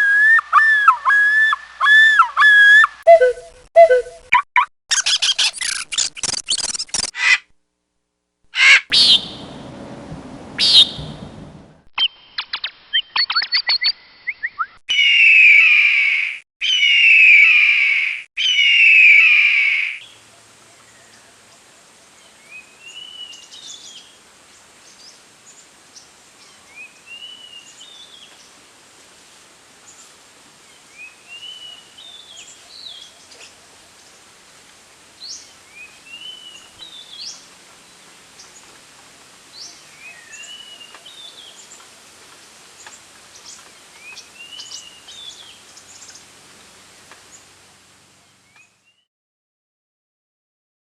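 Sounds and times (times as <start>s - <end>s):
loud harsh bird calls: 8.6s - 9.5s, 10.6s - 11.1s, 14.9s - 20.0s
low rumble: 9.2s - 11.9s
short bird calls: 10.6s - 11.1s
steady hiss: 21.4s - 48.6s.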